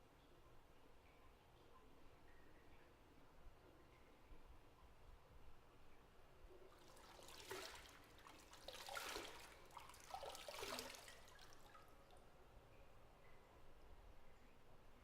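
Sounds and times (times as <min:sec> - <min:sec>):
water dripping: 0:06.5 - 0:14.6
small gurgling splashes: 0:06.7 - 0:12.2
bath water sloshing: 0:06.8 - 0:12.2.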